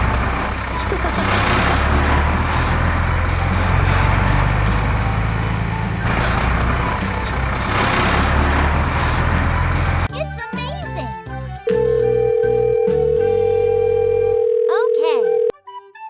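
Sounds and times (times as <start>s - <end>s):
rushing noise: 0.0s - 10.1s
heavy truck engine rumble: 0.0s - 11.0s.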